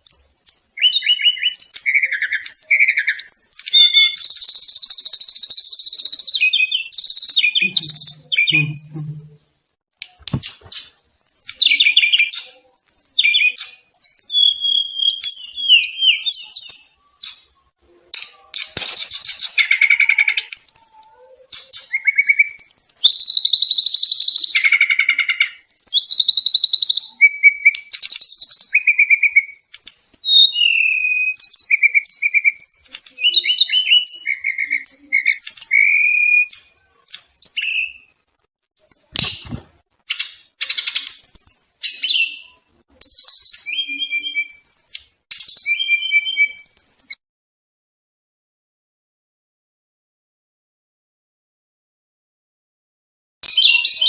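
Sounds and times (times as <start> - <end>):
second bird singing: 0.0 - 9.4, 10.4 - 17.6, 18.5 - 38.1, 38.8 - 47.2, 53.4 - 54.0.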